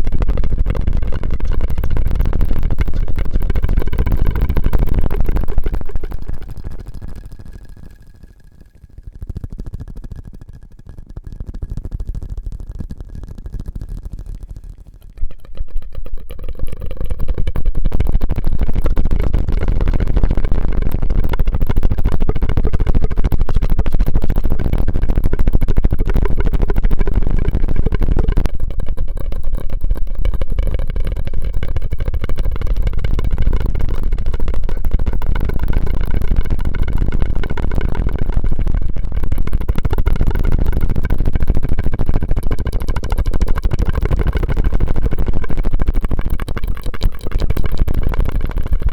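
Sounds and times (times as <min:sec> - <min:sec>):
mouth and straw sounds: 0:12.3 - 0:18.4, 0:41.9 - 0:48.9.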